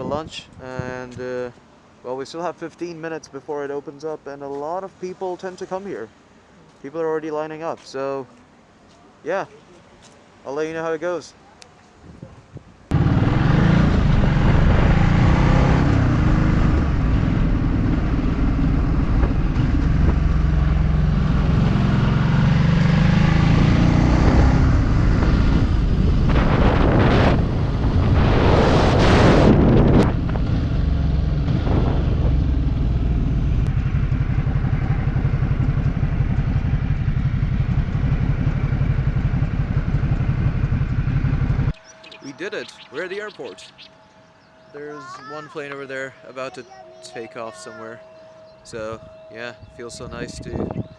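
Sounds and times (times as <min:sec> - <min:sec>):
wind noise on microphone: 0:00.0 - 0:01.5, 0:12.0 - 0:22.1, 0:23.6 - 0:33.7, 0:48.7 - 0:50.9
motorcycle engine running: 0:12.9 - 0:28.1, 0:29.6 - 0:43.4
rushing swell: 0:12.9 - 0:50.1.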